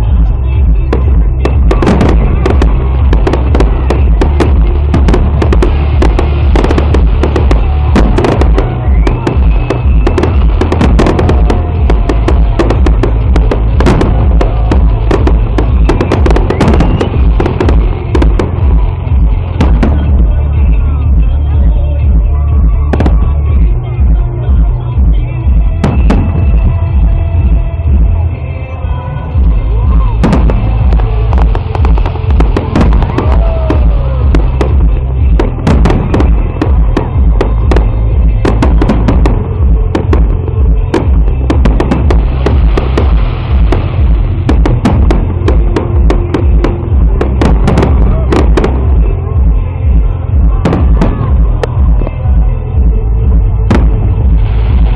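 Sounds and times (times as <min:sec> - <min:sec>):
deep continuous rumble: 0:00.0 - 0:54.9
fireworks bursting and crackling: 0:00.0 - 0:54.9
music playing: 0:00.0 - 0:54.9.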